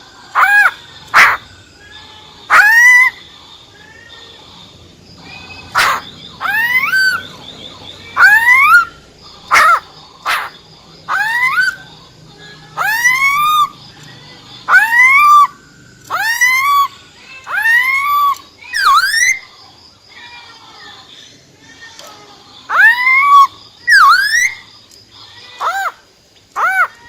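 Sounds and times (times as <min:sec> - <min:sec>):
bird upward-sweeping calls: 0:00.4 - 0:03.2, 0:05.2 - 0:11.9, 0:12.8 - 0:13.8, 0:14.6 - 0:19.5, 0:22.7 - 0:24.6.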